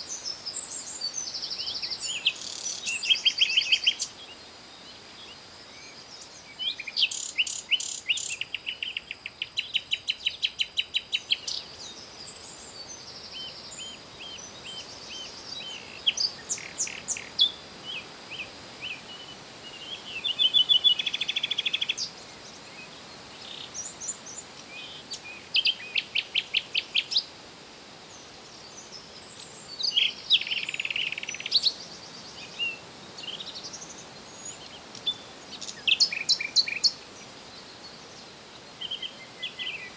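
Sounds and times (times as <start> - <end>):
faint steady hiss: 0.0 - 39.9
songbirds singing and chirping: 0.0 - 39.9.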